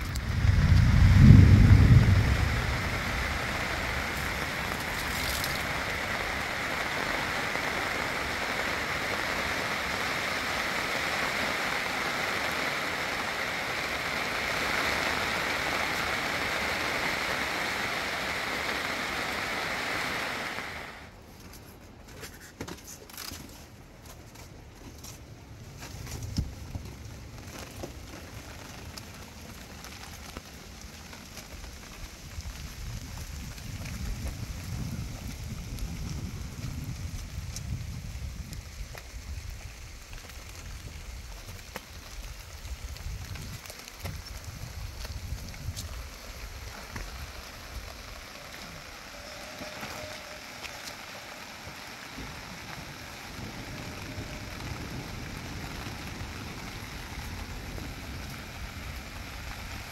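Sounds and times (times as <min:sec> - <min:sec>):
raindrops ticking: 0:00.0 - 0:21.1, 0:24.2 - 0:59.9
rain on a plastic roof: 0:00.0 - 0:59.9.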